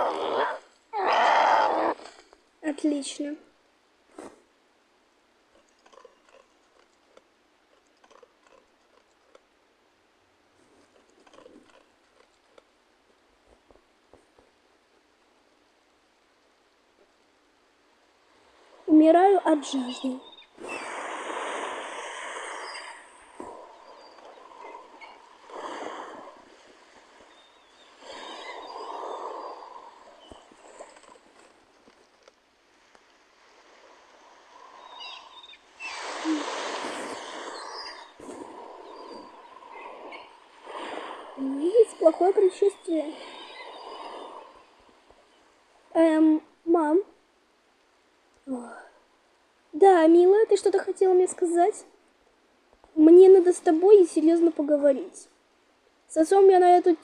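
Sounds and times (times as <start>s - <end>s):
water splashing: 32.8s - 44.8s.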